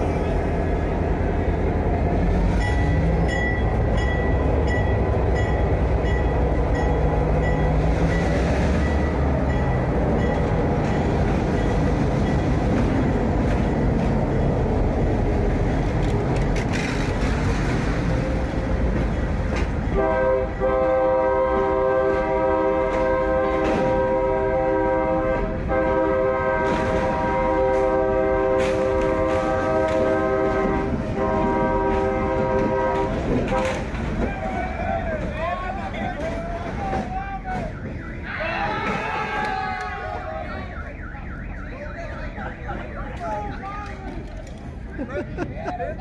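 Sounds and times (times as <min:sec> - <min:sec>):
freight train rumbling past: 0:00.0 - 0:38.0
train air horn chord: 0:20.0 - 0:33.8.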